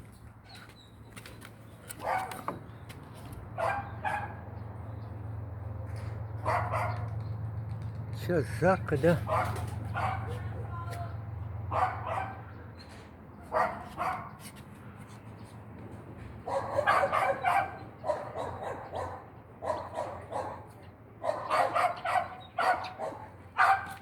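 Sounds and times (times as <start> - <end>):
dog barking: 2.0 - 2.5, 3.6 - 4.4, 6.4 - 7.1, 9.2 - 10.7, 11.7 - 12.6, 13.5 - 14.4, 16.4 - 24.0.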